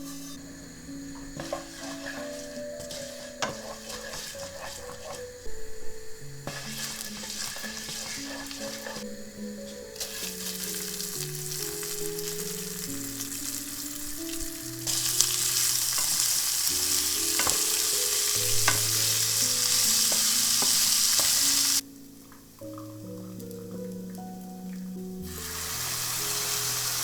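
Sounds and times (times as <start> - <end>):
food sizzling in a frying pan: 0.0 - 27.0
utensil clicking while stirring: 1.4 - 5.5, 6.4 - 9.1.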